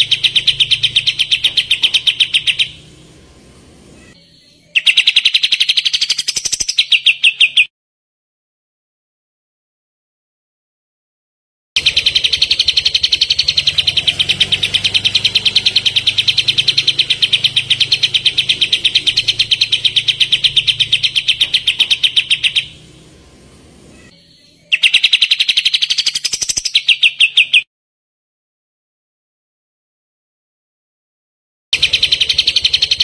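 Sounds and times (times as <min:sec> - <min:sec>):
songbird rapid trill: 0:00.0 - 0:03.3, 0:04.0 - 0:07.7, 0:11.8 - 0:27.7, 0:31.8 - 0:33.0.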